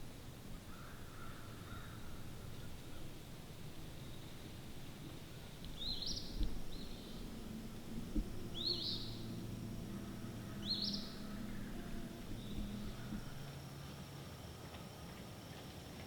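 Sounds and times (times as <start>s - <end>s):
faint low hum: 0.0s - 16.0s
songbird chirping: 5.3s - 13.6s.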